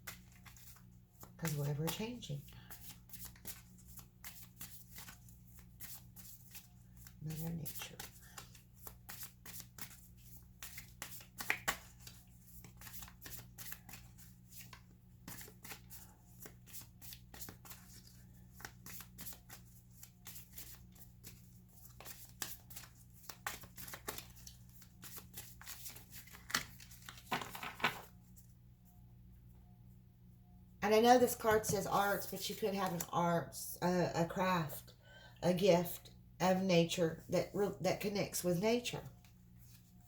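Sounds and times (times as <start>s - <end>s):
cards being shuffled: 0.0s - 28.2s.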